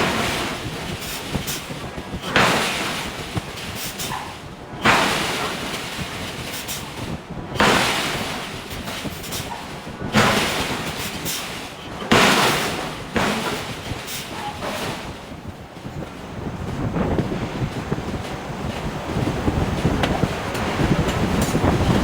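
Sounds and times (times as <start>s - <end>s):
hydraulic hammer striking steel: 10.2s - 15.2s.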